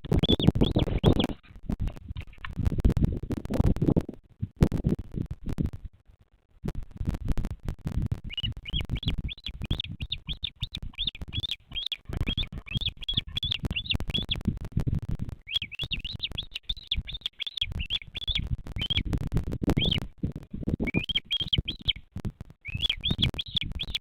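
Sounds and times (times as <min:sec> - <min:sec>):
bird chick peeping: 0:00.0 - 0:02.6, 0:08.1 - 0:14.5, 0:15.4 - 0:24.0
low rumbling and crackling: 0:00.0 - 0:24.0.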